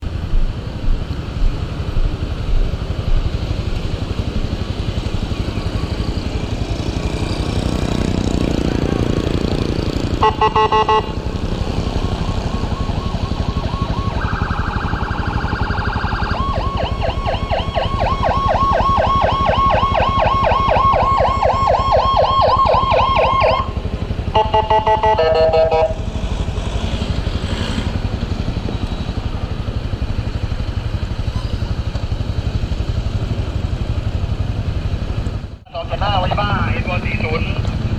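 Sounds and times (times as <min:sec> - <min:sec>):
moving vehicle noise: 0:00.0 - 0:37.9
emergency vehicle siren: 0:05.0 - 0:26.0.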